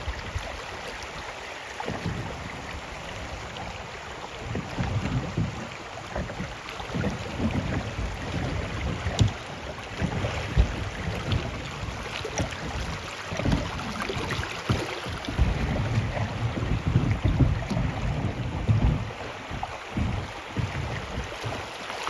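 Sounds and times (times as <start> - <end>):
river water running: 0.0 - 22.0
wind buffeting microphone: 1.8 - 21.9.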